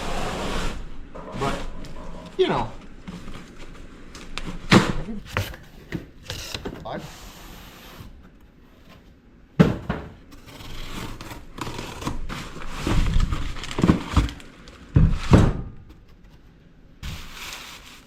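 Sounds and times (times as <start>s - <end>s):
packaging rustling and crinkling: 10.4s - 14.9s.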